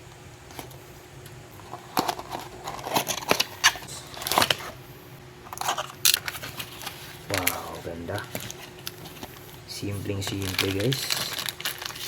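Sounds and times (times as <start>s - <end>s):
packaging being opened by hand: 1.6s - 4.8s, 5.5s - 12.0s.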